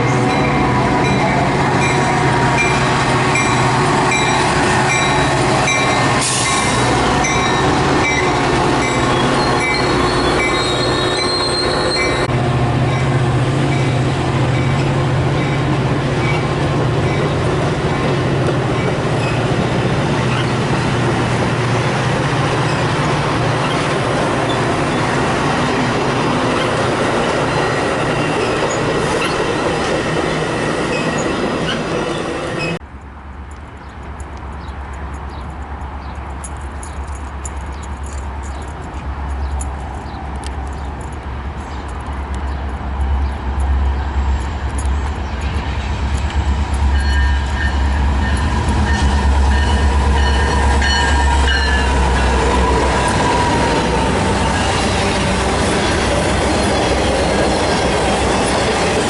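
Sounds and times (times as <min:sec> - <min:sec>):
train bell dinging: 0:00.0 - 0:21.4, 0:33.5 - 0:59.0
locomotive engine droning: 0:00.0 - 0:59.0
rail noise: 0:00.0 - 0:59.0
train wheels squealing: 0:03.4 - 0:12.3, 0:14.6 - 0:17.4, 0:18.8 - 0:19.6, 0:20.2 - 0:20.7, 0:22.6 - 0:25.3, 0:26.4 - 0:32.8, 0:43.2 - 0:59.0.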